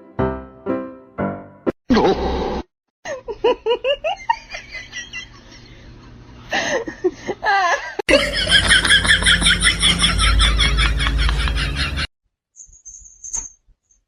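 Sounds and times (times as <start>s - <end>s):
people laughing: 6.5s - 12.1s.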